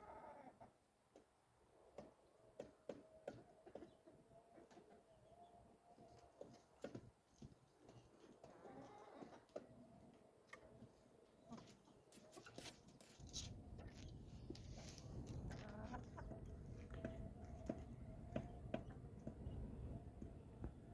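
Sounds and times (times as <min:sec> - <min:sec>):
chickens clucking: 0:08.2 - 0:09.7, 0:10.5 - 0:12.8, 0:15.4 - 0:19.0.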